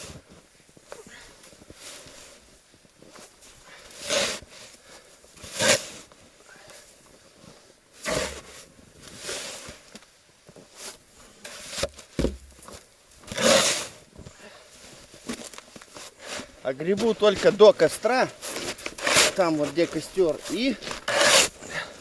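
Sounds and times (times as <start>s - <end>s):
snow shovel scraping: 3.9s - 4.6s, 5.4s - 6.1s, 8.0s - 9.8s, 13.3s - 14.0s, 15.2s - 22.0s.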